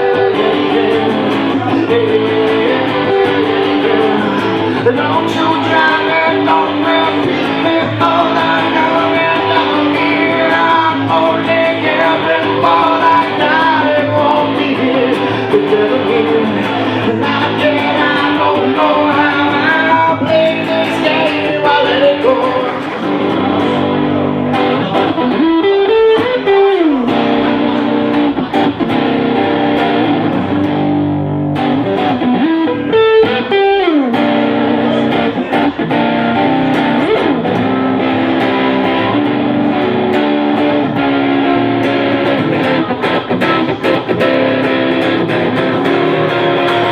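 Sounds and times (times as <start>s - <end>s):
blues-rock electric guitar music: 0.0s - 46.9s.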